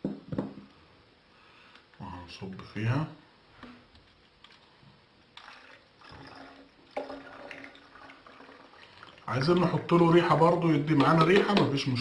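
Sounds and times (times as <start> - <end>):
liquid pouring into bottle: 5.4 - 9.9.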